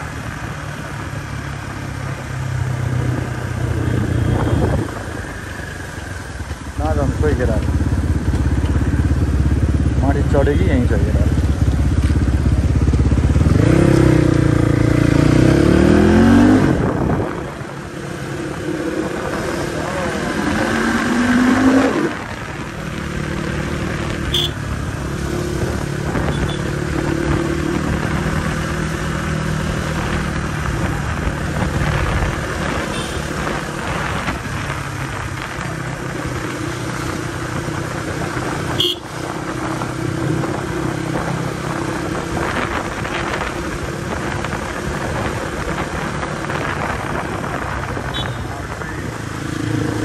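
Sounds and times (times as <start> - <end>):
motorcycle engine revving: 0.0 - 50.0
traffic: 0.0 - 50.0
horn toot: 24.2 - 24.6, 32.8 - 33.3, 38.8 - 39.1, 48.1 - 48.5.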